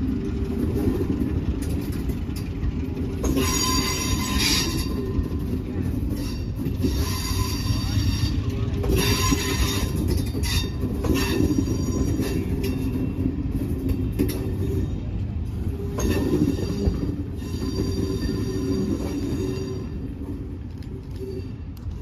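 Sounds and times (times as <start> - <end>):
train rumble: 0.0 - 22.0
wheels clicking over rail joints: 0.0 - 22.0
wheels squealing on rails: 0.0 - 22.0.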